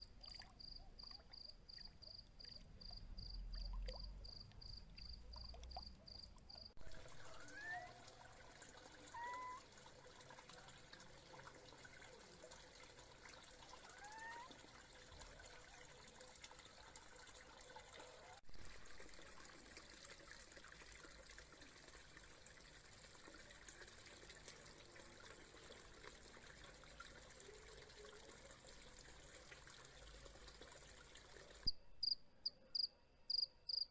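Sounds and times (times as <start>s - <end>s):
faint trickling water: 0.0s - 32.2s
cricket chirping: 0.4s - 6.8s, 31.7s - 33.9s.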